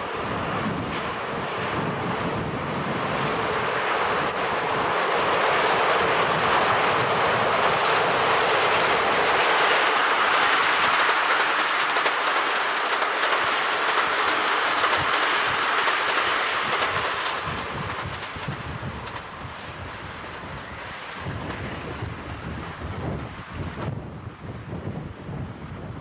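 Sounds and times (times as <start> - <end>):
diesel train passing: 0.0 - 26.0
wheels clicking over rail joints: 7.6 - 19.5.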